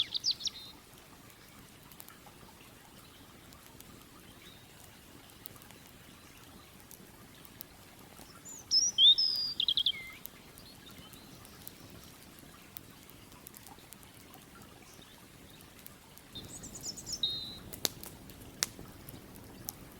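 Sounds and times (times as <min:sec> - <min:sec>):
songbird singing: 0:00.0 - 0:00.8, 0:04.2 - 0:07.6, 0:08.2 - 0:12.8, 0:14.7 - 0:17.7
campfire crackles: 0:00.0 - 0:19.9
low steady hiss: 0:00.0 - 0:19.9.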